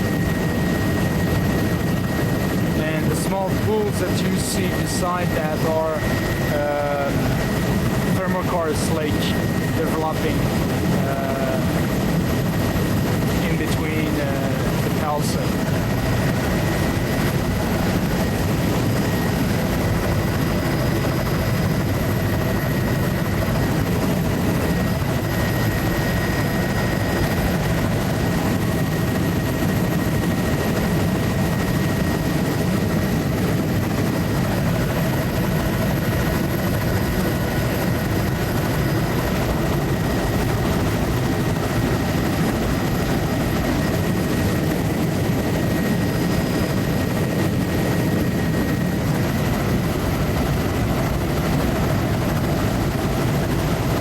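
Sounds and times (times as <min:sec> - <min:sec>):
aircraft engine drone from cabin: 0:00.0 - 0:54.0.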